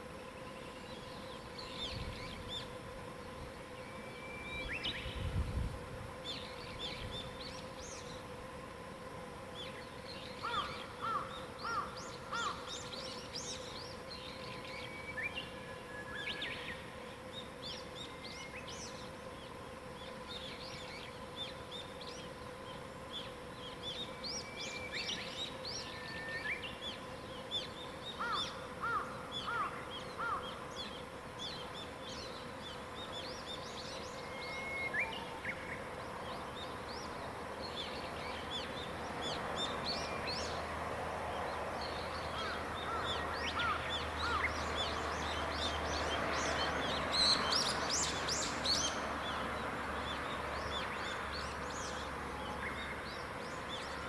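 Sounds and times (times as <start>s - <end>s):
faint steady hum: 0.0s - 54.0s
songbirds chirping and singing: 41.4s - 54.0s.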